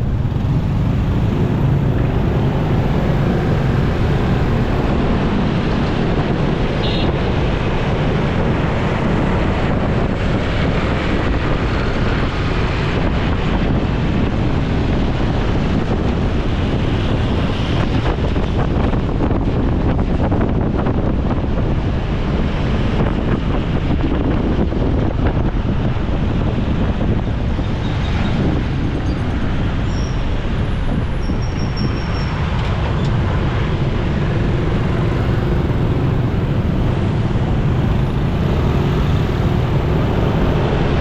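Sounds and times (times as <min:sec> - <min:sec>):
motorcycle engine: 0:00.0 - 0:05.3
traffic noise: 0:00.0 - 0:41.0
wind rush on microphone: 0:00.0 - 0:41.0.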